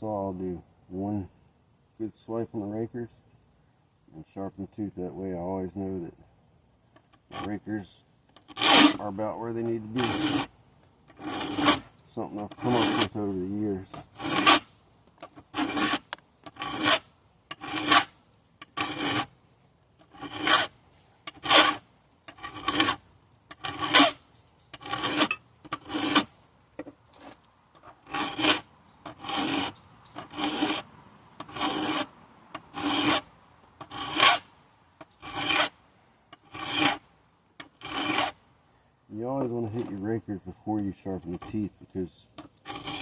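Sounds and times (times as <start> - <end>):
file rasping on chainsaw chain: 7.2 - 7.6, 8.4 - 10.5, 11.1 - 19.3, 20.0 - 20.7, 21.3 - 26.3, 27.2 - 35.8, 36.4 - 37.0, 37.6 - 38.4, 41.2 - 41.7, 42.4 - 43.0.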